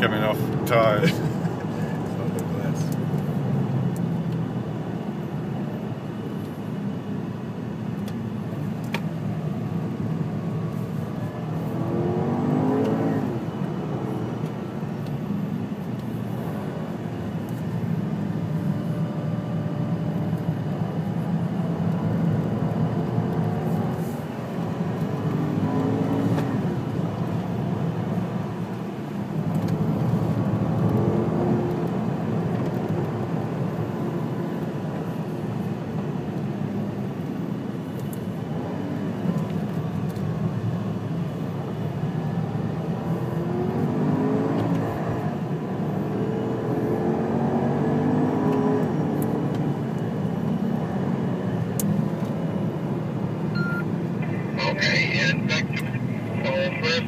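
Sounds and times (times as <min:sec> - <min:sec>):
car engine accelerating: 0:11.5 - 0:15.3.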